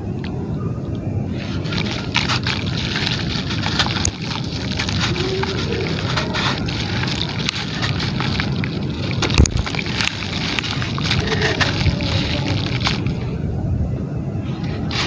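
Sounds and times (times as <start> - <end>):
gritty material crumbling into water: 1.3 - 13.4.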